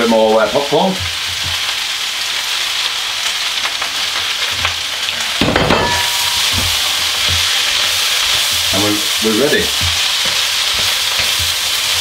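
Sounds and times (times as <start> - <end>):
rice sizzling in a wok: 0.0 - 12.0
wooden spatula scraping wok: 6.0 - 12.0.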